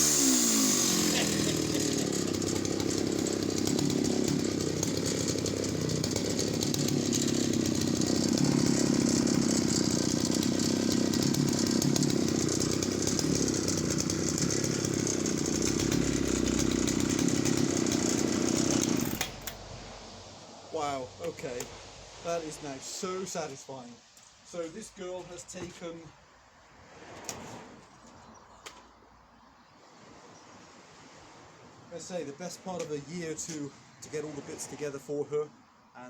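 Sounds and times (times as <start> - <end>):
chainsaw cutting through log: 0.0 - 19.9.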